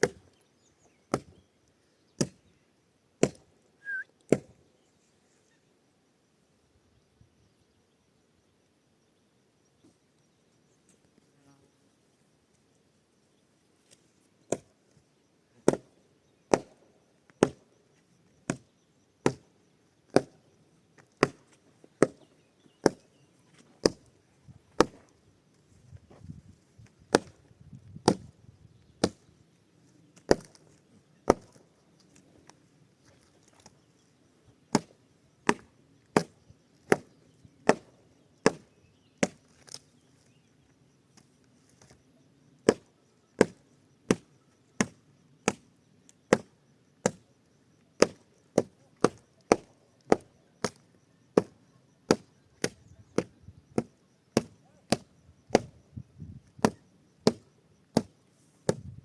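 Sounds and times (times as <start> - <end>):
axe chopping wood: 1.1 - 1.4, 3.2 - 3.4, 15.7 - 15.9, 16.5 - 16.7, 20.1 - 20.4, 24.8 - 25.0, 27.1 - 27.4, 28.0 - 28.3, 29.0 - 29.2, 30.3 - 30.5, 31.3 - 31.5, 34.7 - 39.4, 42.6 - 44.2, 46.3 - 47.2, 48.0 - 50.8, 52.1 - 55.7, 56.6 - 58.1, 58.7 - 59.0.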